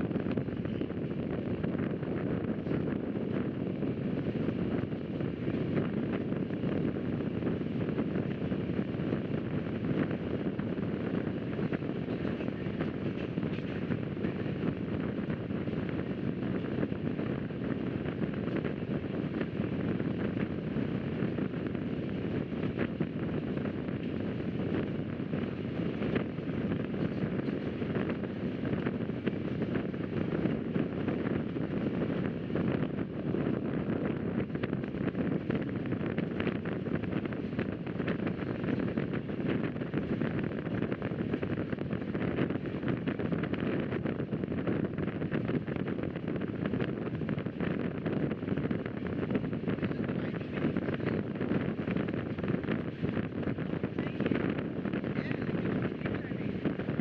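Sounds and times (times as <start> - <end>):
wind rushing past: 0.0 - 57.0
train wheels rumbling: 10.9 - 18.6.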